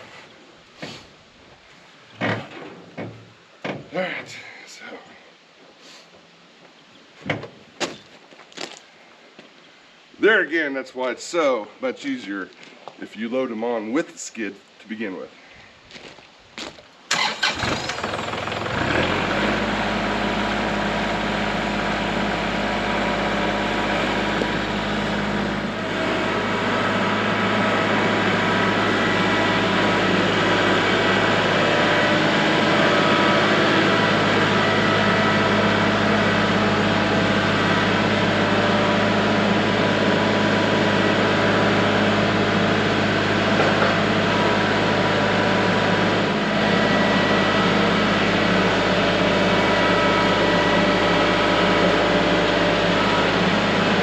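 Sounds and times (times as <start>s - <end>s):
engine starting and idling: 17.1s - 54.0s.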